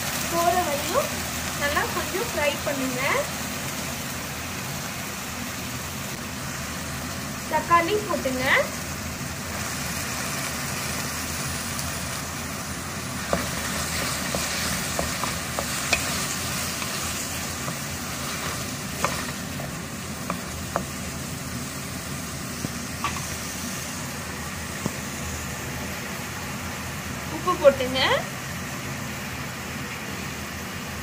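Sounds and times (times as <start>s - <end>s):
vegetables sizzling in hot oil: 0.0s - 31.0s
spatula scraping a pan: 13.3s - 19.4s.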